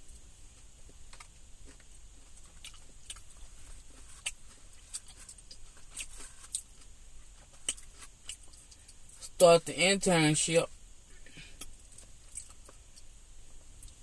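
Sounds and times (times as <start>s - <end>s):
person chewing food: 0.0s - 9.2s, 11.1s - 14.0s.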